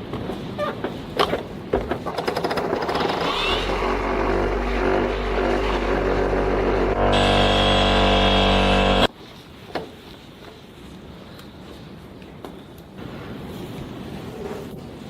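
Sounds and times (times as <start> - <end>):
electric polisher humming: 3.3 - 9.1.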